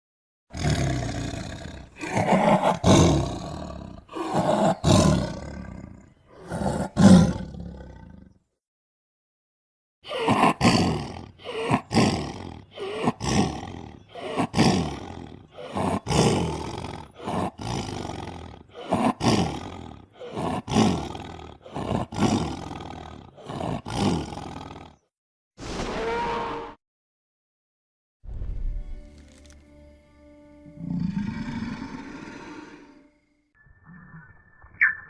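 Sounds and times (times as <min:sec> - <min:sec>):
monster roars: 0:00.6 - 0:08.3, 0:10.1 - 0:25.0, 0:30.8 - 0:33.0
short steady cry: 0:01.9 - 0:05.7, 0:10.1 - 0:24.2.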